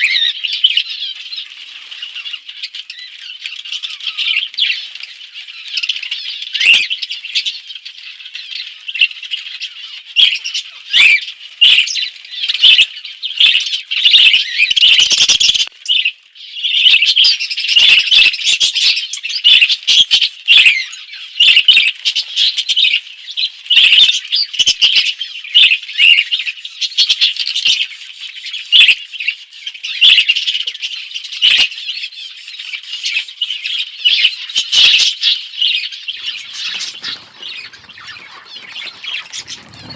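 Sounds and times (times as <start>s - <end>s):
budgerigars chattering: 8.1s - 23.0s, 34.0s - 39.9s.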